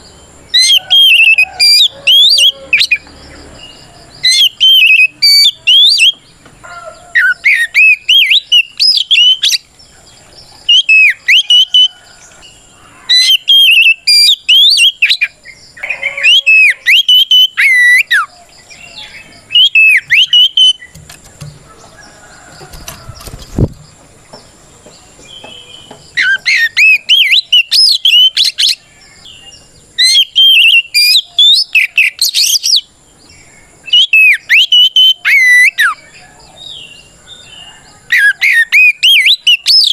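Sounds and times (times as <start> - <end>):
magpie-robin whistled song: 0.0 - 6.3, 7.0 - 9.7, 10.6 - 12.4, 13.1 - 21.0, 25.3 - 32.9, 33.8 - 39.9
dull knock: 21.0 - 21.7.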